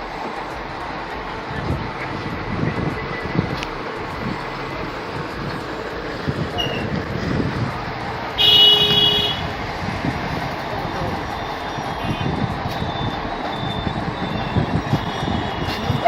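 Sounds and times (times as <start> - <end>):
traffic noise: 0.0 - 16.0
vehicle horn honking: 8.4 - 9.5, 14.4 - 16.0.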